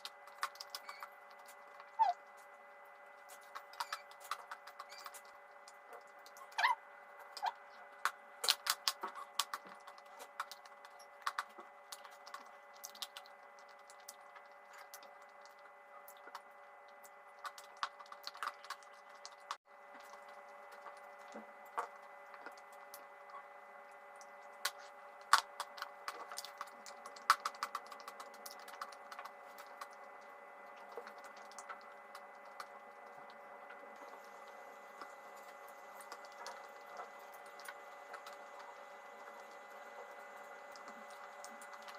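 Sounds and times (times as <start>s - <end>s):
faint steady hum: 0.0s - 41.9s
chalk crunching while chewed: 24.2s - 41.9s.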